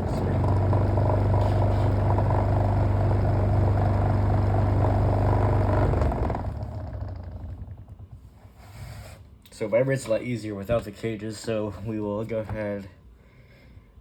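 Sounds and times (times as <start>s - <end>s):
electric fan humming and rattling: 0.0s - 14.0s.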